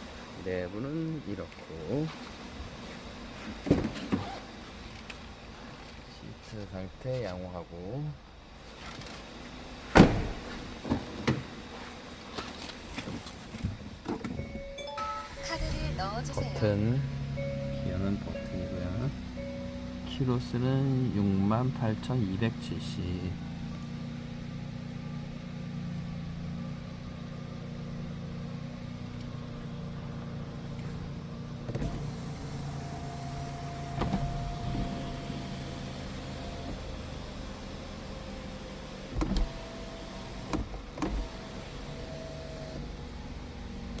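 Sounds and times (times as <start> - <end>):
car engine idling: 14.6 - 44.0.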